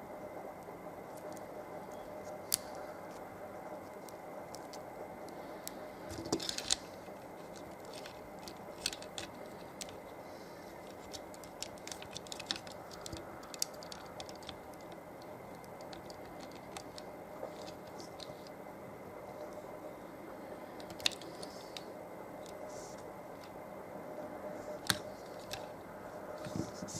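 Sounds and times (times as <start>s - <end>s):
plastic packaging rustling: 6.0s - 18.6s.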